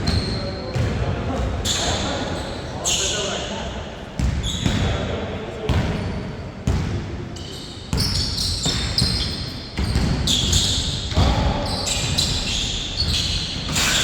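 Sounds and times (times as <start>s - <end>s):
sneaker squeaks: 0.0s - 5.1s, 5.7s - 14.0s
basketball bouncing on hard court: 7.9s - 11.5s.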